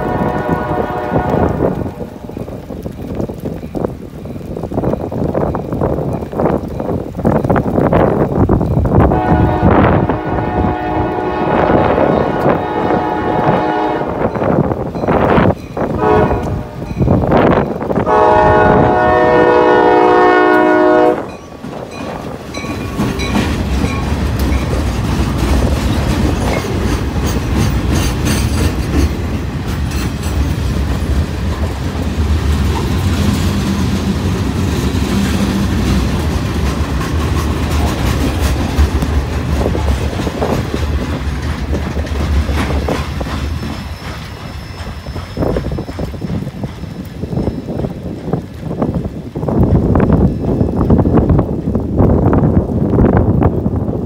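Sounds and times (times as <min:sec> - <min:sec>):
locomotive horn blasts: 0:00.0 - 0:02.2, 0:09.1 - 0:14.4, 0:16.0 - 0:16.9, 0:18.1 - 0:21.4
freight train passing: 0:00.0 - 0:54.0.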